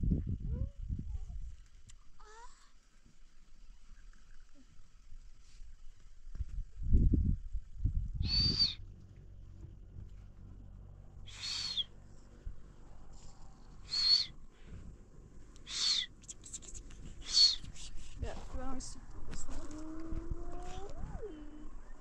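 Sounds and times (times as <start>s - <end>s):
bird calling: 8.2s - 8.8s, 11.2s - 12.0s, 13.7s - 14.4s, 15.6s - 17.8s.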